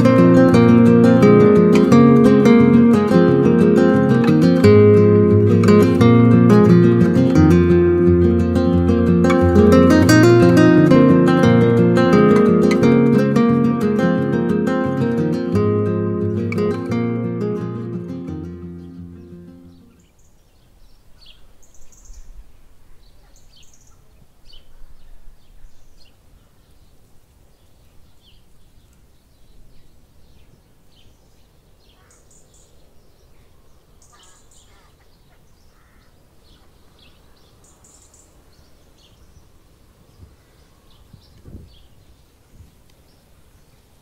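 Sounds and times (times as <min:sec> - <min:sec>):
birds chirping and singing: 0:15.6 - 0:27.0, 0:27.6 - 0:42.4.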